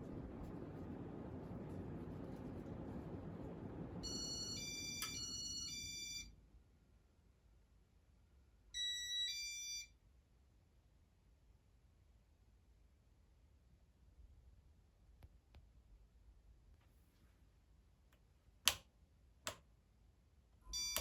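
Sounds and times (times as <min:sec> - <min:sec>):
ceiling fan humming: 0:00.0 - 0:06.3.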